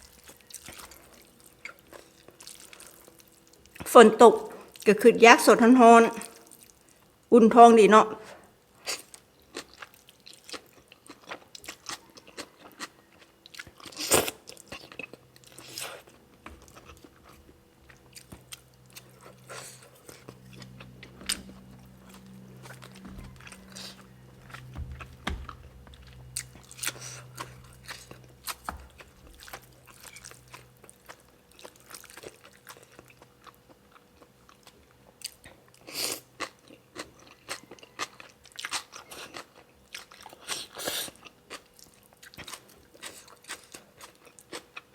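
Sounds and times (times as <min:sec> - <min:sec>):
person crunching and chewing: 0:00.0 - 0:03.9, 0:08.8 - 0:44.9
low steady hum: 0:14.7 - 0:35.0.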